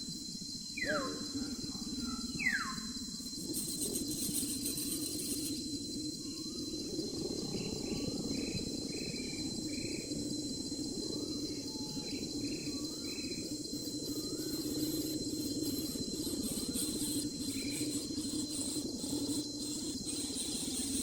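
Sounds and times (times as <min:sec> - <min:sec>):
insect shrilling: 0:03.2 - 0:05.8, 0:13.5 - 0:21.0.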